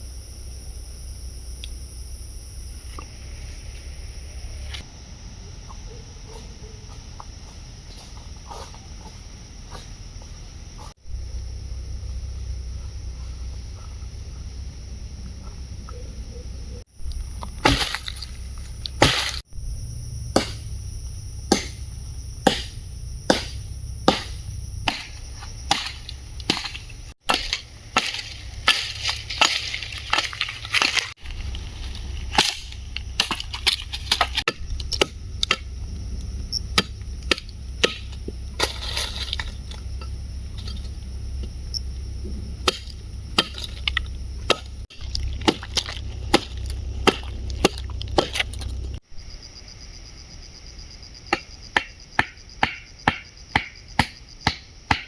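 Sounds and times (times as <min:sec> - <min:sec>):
steady low rumble: 0:00.0 - 0:49.6
wood chopping strikes: 0:17.1 - 0:19.4, 0:20.3 - 0:20.8, 0:21.5 - 0:31.2, 0:32.2 - 0:35.7, 0:36.8 - 0:40.7, 0:42.3 - 0:48.8, 0:51.3 - 0:55.0.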